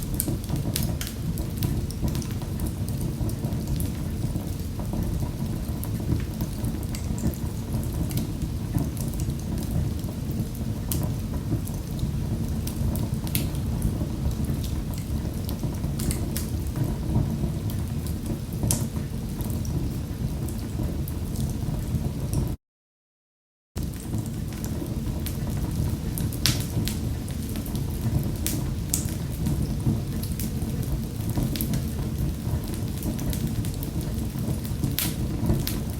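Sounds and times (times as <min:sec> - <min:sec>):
wood fire crackling: 0:00.0 - 0:22.6, 0:23.8 - 0:35.9.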